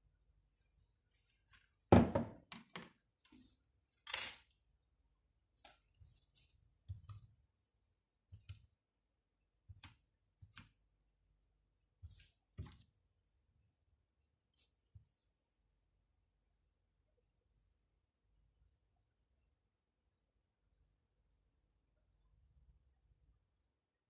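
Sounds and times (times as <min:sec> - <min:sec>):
loud knock on workbench: 0:01.9 - 0:02.4.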